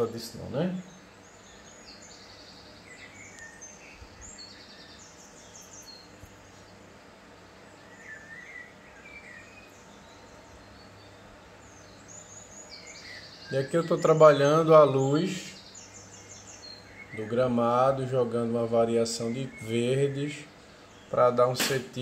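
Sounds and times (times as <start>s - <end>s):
birds chirping and calling: 0.0s - 22.0s
low background noise: 0.0s - 22.0s.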